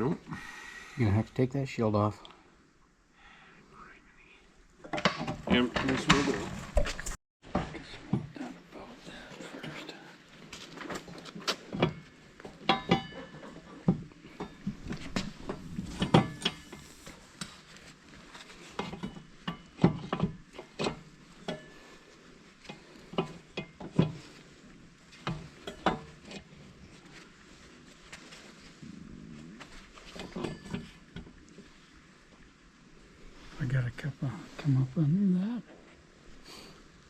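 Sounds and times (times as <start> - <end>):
metal clanks and knocks: 4.9 - 6.9, 11.7 - 16.8, 18.8 - 21.9, 30.1 - 31.3.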